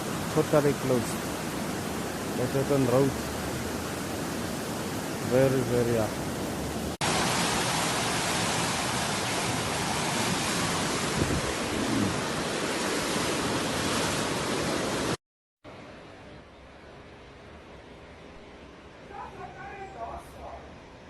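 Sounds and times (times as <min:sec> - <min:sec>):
floodwater rushing: 0:00.0 - 0:15.2.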